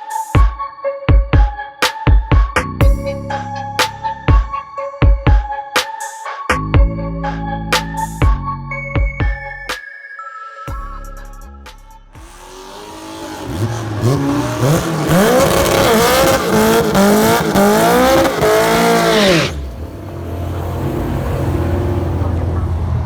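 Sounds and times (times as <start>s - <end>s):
car engine revving: 12.2s - 23.0s.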